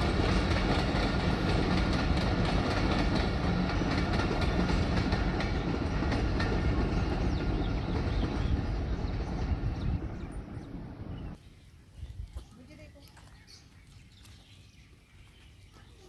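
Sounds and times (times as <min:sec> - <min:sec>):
wheels clicking over rail joints: 0:00.0 - 0:09.9
train coaches rumbling past: 0:00.0 - 0:11.4.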